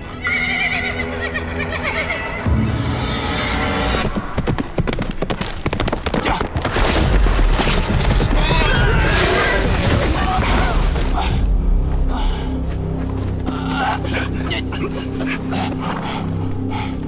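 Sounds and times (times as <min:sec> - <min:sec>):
hooves clattering on hard ground: 0:04.1 - 0:08.8.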